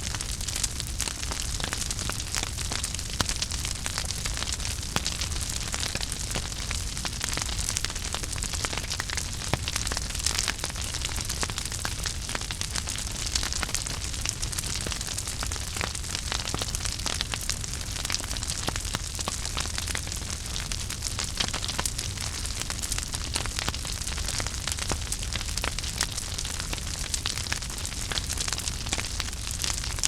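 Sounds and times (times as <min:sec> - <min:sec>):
wood fire crackling and popping: 0:00.0 - 0:30.0.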